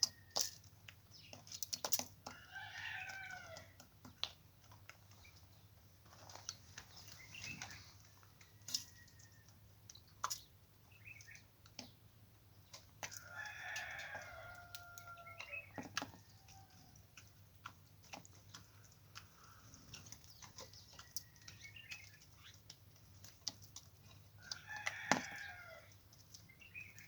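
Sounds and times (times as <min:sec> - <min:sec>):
rooster crowing: 0:02.3 - 0:03.7, 0:13.2 - 0:15.6, 0:24.4 - 0:25.9.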